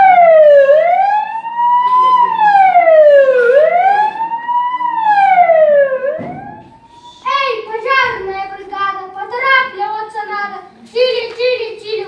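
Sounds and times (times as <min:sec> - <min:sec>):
fire siren wailing: 0:00.0 - 0:07.2.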